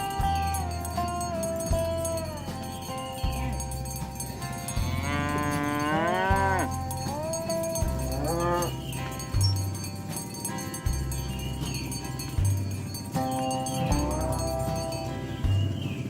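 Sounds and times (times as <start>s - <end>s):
music with bass beat: 0.0s - 16.0s
cattle mooing: 4.4s - 9.2s.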